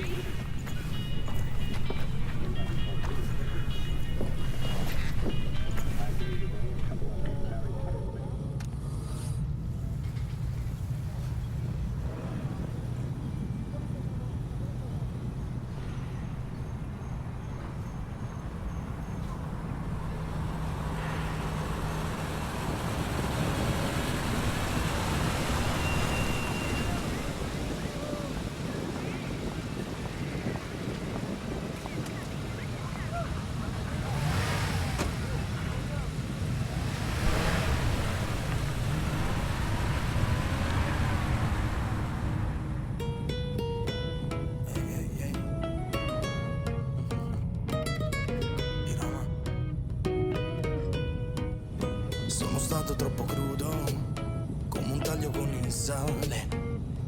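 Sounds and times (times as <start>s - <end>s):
wind and road noise: 0.0s - 57.0s
motorcycle engine running: 15.4s - 43.1s.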